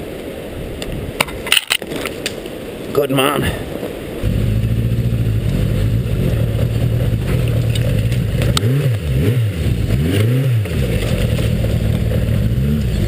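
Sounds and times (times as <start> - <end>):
motorcycle engine revving: 4.2 - 13.0.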